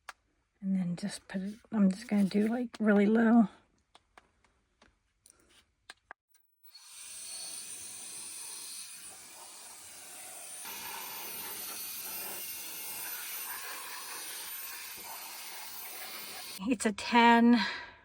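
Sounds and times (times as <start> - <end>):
air duster blowing hiss: 7.3 - 16.6.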